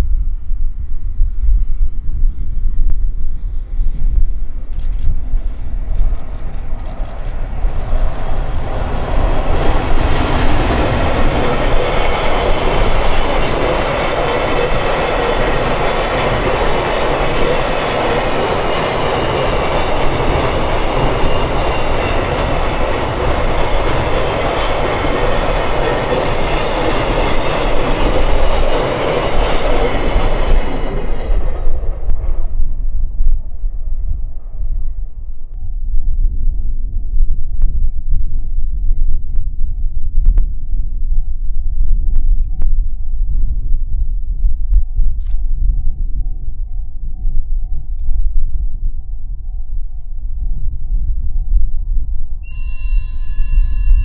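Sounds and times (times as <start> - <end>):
train running past: 3.4 - 34.6.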